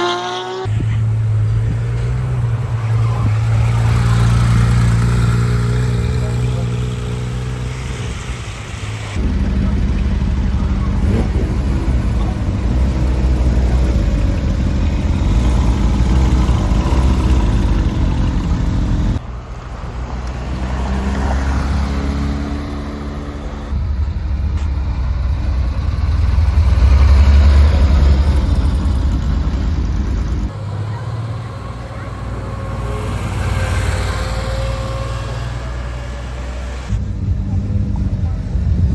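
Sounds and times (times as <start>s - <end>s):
sports car engine revving: 9.2s - 19.2s
car passing by: 16.2s - 23.8s.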